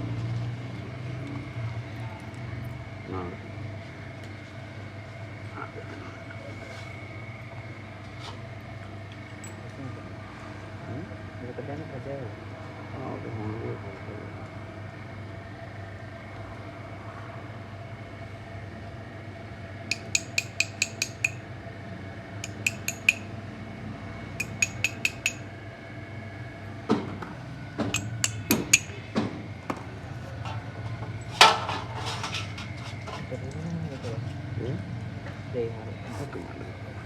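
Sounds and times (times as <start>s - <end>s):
steady low hum: 2.7s - 37.0s
metal clinks and knocks: 19.9s - 21.4s, 22.4s - 23.3s, 24.4s - 25.4s, 28.0s - 29.0s, 30.4s - 33.3s
sharp clicks of hand tools: 19.9s - 21.4s, 22.4s - 23.3s, 24.4s - 25.5s, 27.9s - 29.0s.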